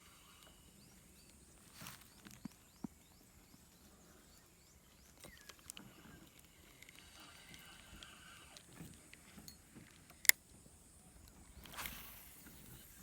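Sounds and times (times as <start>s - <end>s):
small clicks: 5.2s - 10.4s.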